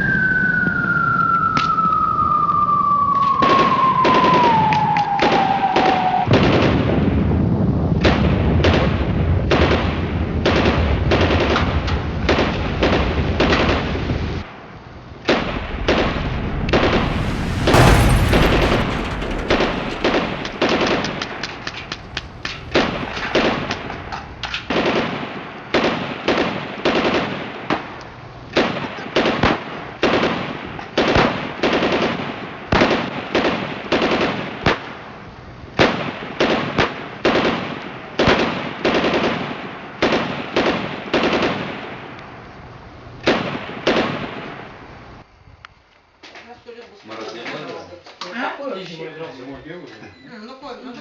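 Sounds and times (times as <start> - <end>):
loud sharp bangs: 15.3 - 25.1.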